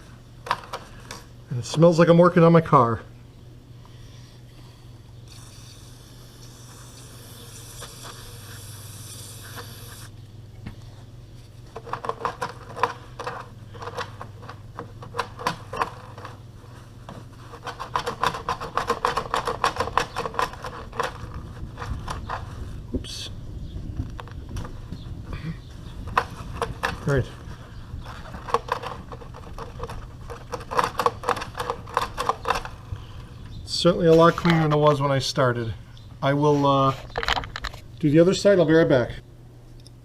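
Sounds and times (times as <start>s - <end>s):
aerosol spray hissing: 5.3s - 10.1s
rapid scraping and rubbing: 11.4s - 22.8s.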